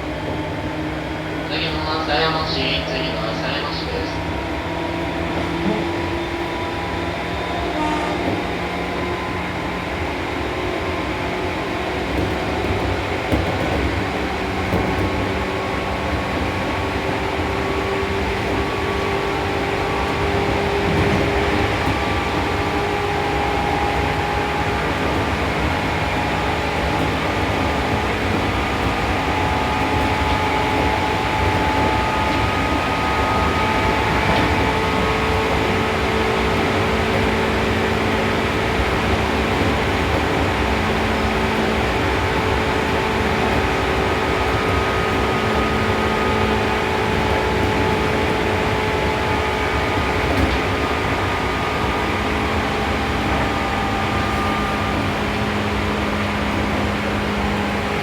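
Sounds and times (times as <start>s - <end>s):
train wheels rumbling on rails: 0.0s - 58.0s
train motor tones: 7.6s - 8.6s.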